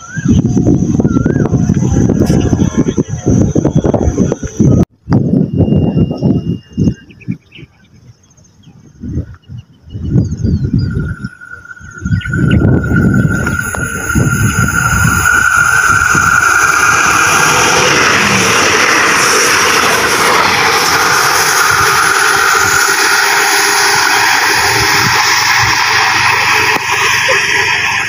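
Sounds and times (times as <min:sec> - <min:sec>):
train engine rumble: 0:09.0 - 0:28.0
steady high tone: 0:10.3 - 0:28.0
wheel-on-rail noise: 0:10.5 - 0:28.0.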